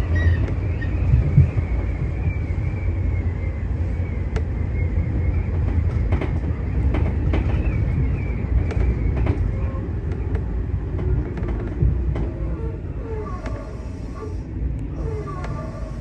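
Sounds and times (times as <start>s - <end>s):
rail clicks: 0.0s - 16.0s
train wheels rumbling on track: 0.0s - 16.0s.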